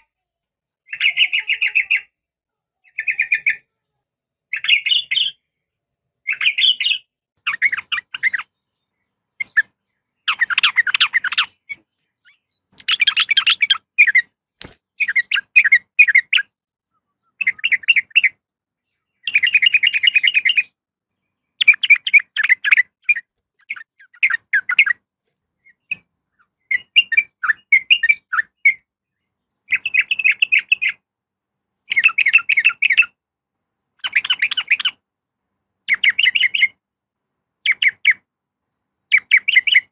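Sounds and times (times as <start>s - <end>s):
bird chattering calls: 6.3s - 8.5s, 9.4s - 14.3s.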